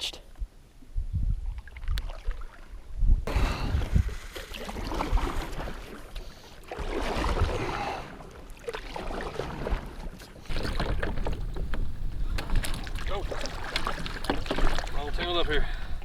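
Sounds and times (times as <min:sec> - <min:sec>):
wind rumble on microphone: 0:00.4 - 0:04.3, 0:10.5 - 0:16.0
water splashing and sloshing: 0:01.4 - 0:16.0.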